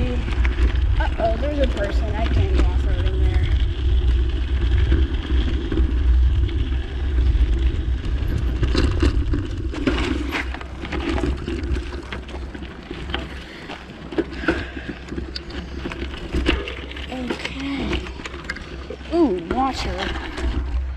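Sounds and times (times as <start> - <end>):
bicycle rumbling over bumpy ground: 0.0 - 20.9
bicycle rattling clicks: 3.5 - 19.0.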